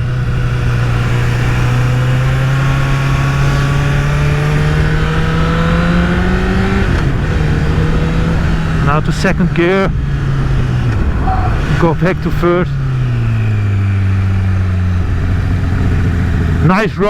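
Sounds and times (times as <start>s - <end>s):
motorcycle engine accelerating: 0.0s - 17.0s
wind on microphone: 9.9s - 16.6s.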